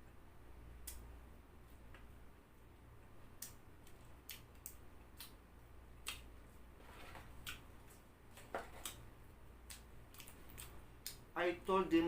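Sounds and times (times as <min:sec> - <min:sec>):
person chewing crispy food: 0:09.6 - 0:11.2.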